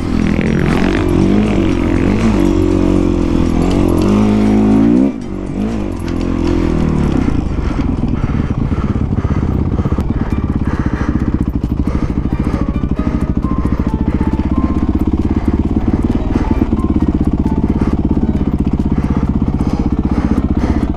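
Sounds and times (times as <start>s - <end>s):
music: 0.0s - 4.6s, 10.0s - 20.9s
dirt bike engine running: 0.0s - 20.9s.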